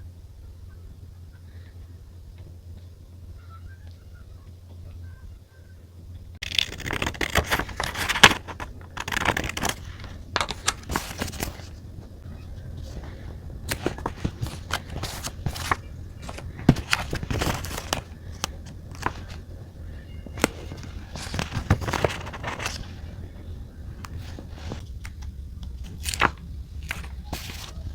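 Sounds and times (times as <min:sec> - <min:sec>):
low steady hum: 0:00.0 - 0:27.9
paper crinkling and rustling: 0:06.4 - 0:27.9.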